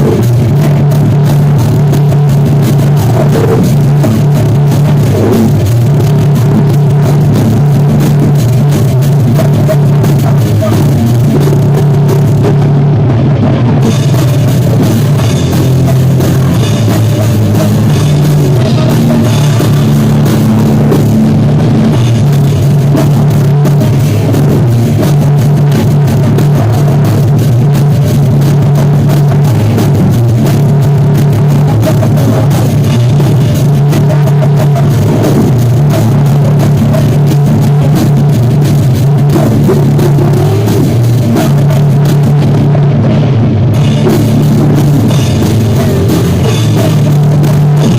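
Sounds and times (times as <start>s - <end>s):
drum kit beat: 0.0s - 47.9s
live rock band playing: 0.0s - 47.9s.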